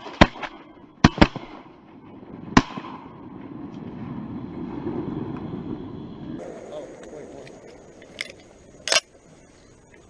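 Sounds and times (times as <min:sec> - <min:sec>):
shotgun blasts: 0:00.0 - 0:03.4
low rushing noise: 0:00.5 - 0:10.0.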